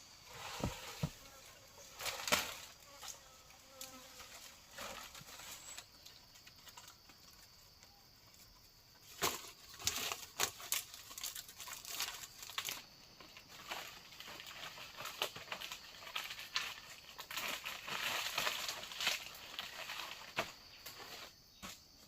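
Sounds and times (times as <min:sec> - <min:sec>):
crinkling and rustling handling: 0:03.9 - 0:21.4.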